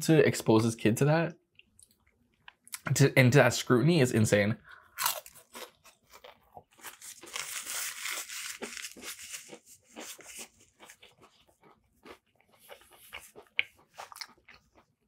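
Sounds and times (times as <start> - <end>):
chewing with wet mouth clicks: 1.5 - 2.9, 10.7 - 15.0
crunching fried food: 4.9 - 15.0.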